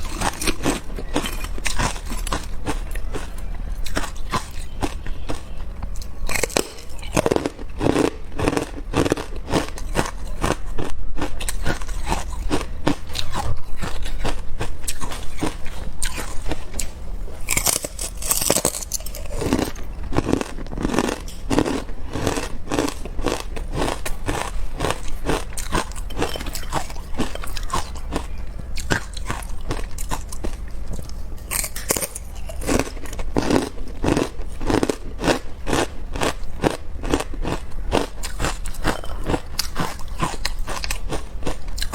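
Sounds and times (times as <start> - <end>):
ice crunching while chewed: 0.0 - 41.9
crackling ice: 17.5 - 30.1.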